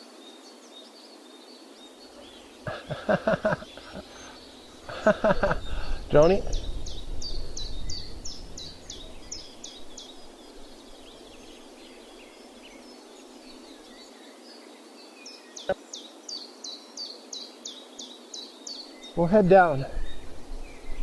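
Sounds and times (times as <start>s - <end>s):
songbird high falling chirps: 0.3s - 21.0s
faint bird notes: 1.9s - 21.0s
low rumble: 4.8s - 10.9s.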